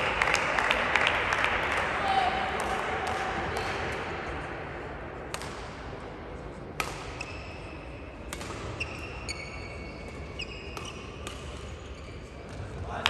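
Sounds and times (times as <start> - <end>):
racket hitting shuttlecock: 5.3 - 5.8, 6.8 - 9.3, 10.0 - 11.8
shoes squeaking on court floor: 8.7 - 12.8.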